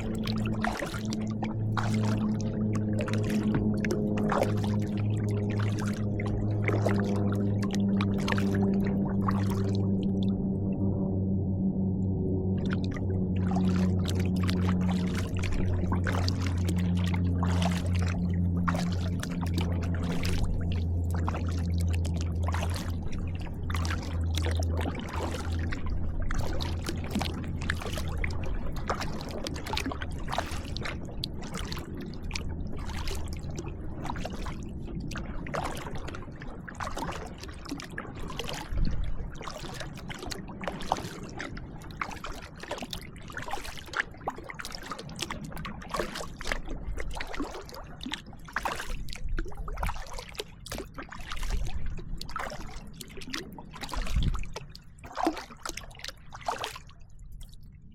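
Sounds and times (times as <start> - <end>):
water dripping off paddle: 0.0 - 10.5, 12.6 - 36.1, 39.4 - 56.8
kayak paddle strokes splashing: 0.0 - 57.5
low steady hum: 0.0 - 57.9.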